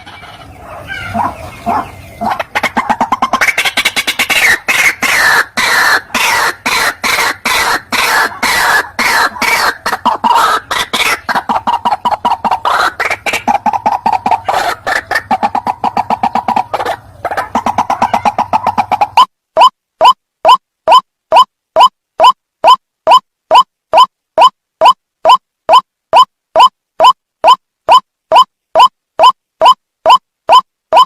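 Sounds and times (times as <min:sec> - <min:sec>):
waterhen calling: 0:00.0 - 0:20.2.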